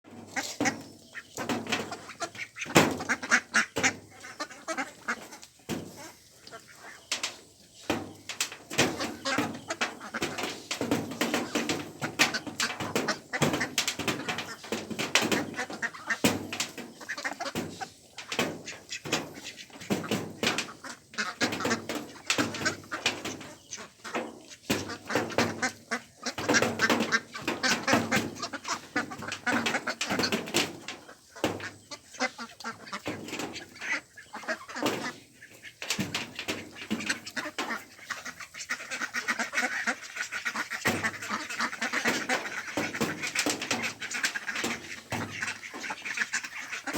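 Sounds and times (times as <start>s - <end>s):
ducks quacking: 0.1s - 46.9s.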